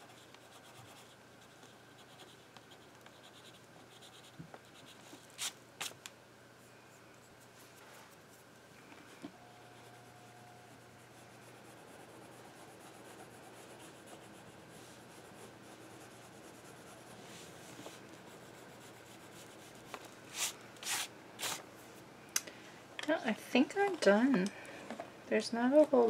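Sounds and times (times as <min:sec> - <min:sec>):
drawing strokes scratching on paper: 0:09.6 - 0:21.6.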